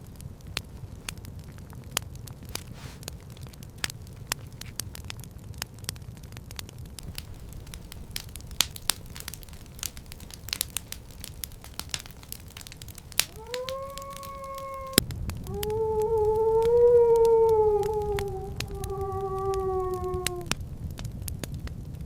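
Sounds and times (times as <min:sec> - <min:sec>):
crackling and snapping: 0:00.0 - 0:22.0
long howling cries: 0:07.0 - 0:20.6.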